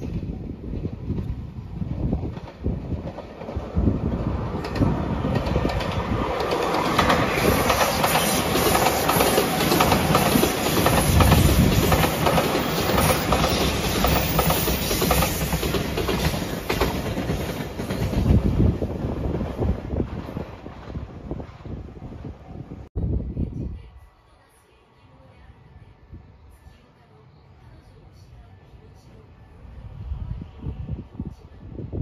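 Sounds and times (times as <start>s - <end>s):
train passing: 0.0s - 22.9s
wheels clacking over rail joints: 2.2s - 18.5s.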